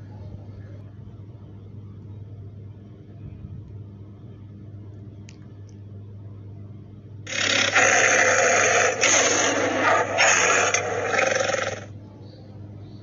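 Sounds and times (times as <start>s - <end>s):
tiger rasping call: 7.3s - 11.9s.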